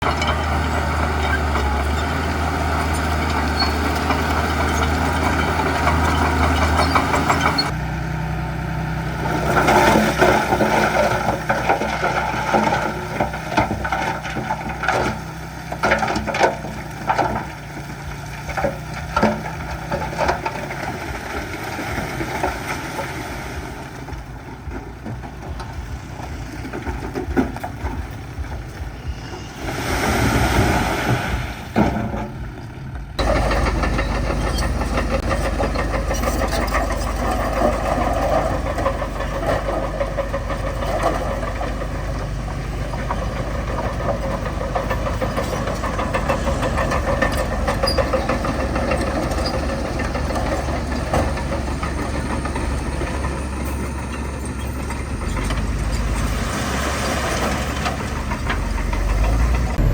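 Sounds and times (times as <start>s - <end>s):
sharp knocks and rattles: 0.0s - 7.8s, 9.3s - 29.5s, 30.4s - 59.9s
heavy diesel engines running: 0.0s - 59.9s.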